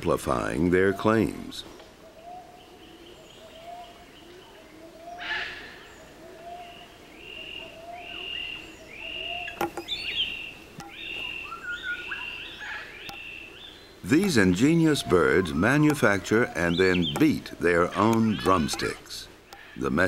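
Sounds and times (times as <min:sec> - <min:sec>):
birds whistling short notes: 0:07.2 - 0:18.9.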